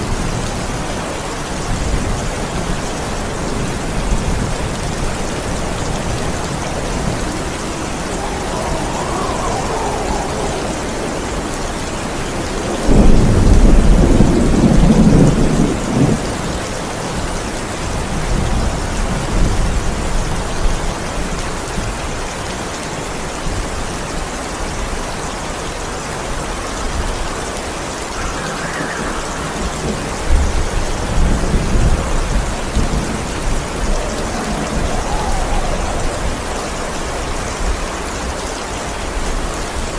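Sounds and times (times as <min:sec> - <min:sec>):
heavy rain: 0:00.0 - 0:39.9
rolling thunder: 0:01.6 - 0:20.9, 0:28.0 - 0:38.4.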